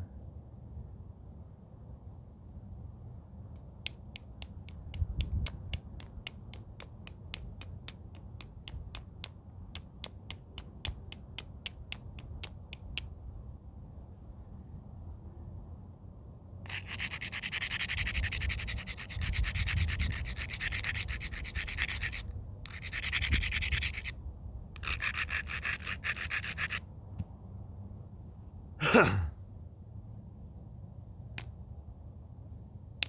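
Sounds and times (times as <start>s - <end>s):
stone rubbing against stone: 16.7s - 24.2s, 24.8s - 26.8s.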